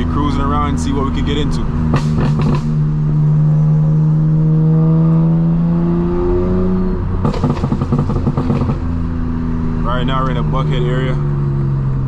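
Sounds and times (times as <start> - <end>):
car exhaust roaring: 0.0 - 12.0
exhaust crackles and pops: 0.2 - 2.8, 7.2 - 9.0.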